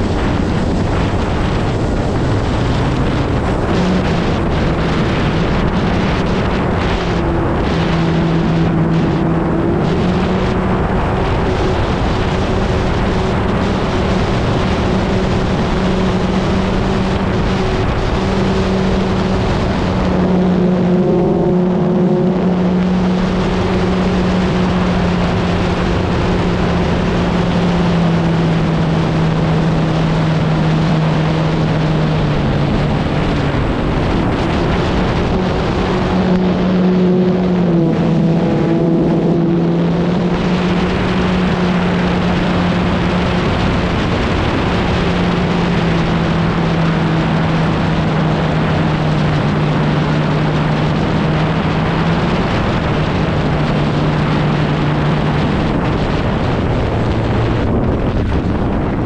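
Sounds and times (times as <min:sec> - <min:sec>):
wind rushing: 0:00.0 - 0:59.0.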